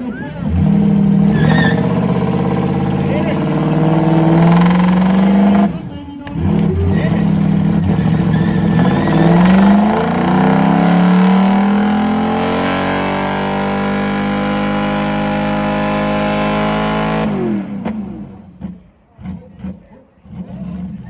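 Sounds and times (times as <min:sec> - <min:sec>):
car engine revving high: 0:00.0 - 0:21.0.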